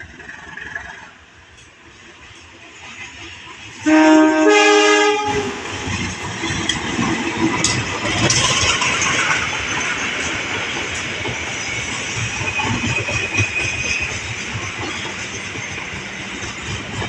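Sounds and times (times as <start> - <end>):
train wheels clattering on rails: 0.0 - 17.0
high wheel squeal: 11.0 - 16.9.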